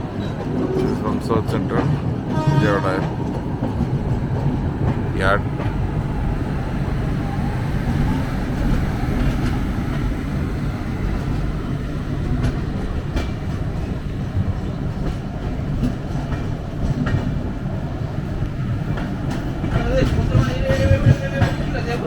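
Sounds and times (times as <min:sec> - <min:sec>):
train wheels rumbling on rail: 0:00.0 - 0:22.0
wheels clicking over rail joints: 0:18.3 - 0:22.0.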